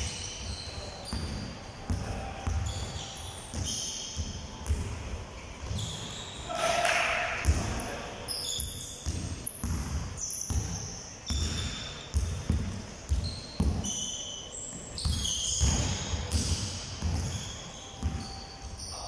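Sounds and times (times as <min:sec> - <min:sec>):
basketballs bouncing on court: 0:00.0 - 0:07.8, 0:08.7 - 0:14.1, 0:14.7 - 0:18.8
short high squeaks: 0:02.6 - 0:04.2, 0:05.7 - 0:07.0, 0:08.3 - 0:09.0, 0:13.2 - 0:16.3.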